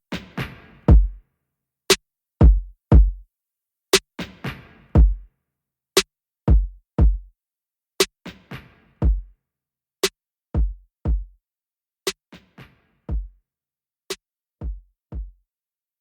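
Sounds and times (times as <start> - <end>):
deep kick drum hits: 0.9 - 1.2, 2.4 - 3.2, 5.0 - 5.2, 6.5 - 7.3, 9.0 - 9.2, 10.6 - 11.3
drum machine snap: 0.9 - 1.2, 2.4 - 3.2, 5.0 - 5.2, 6.5 - 7.3, 9.0 - 9.2, 10.0 - 11.3, 13.1 - 13.3, 14.1 - 15.3.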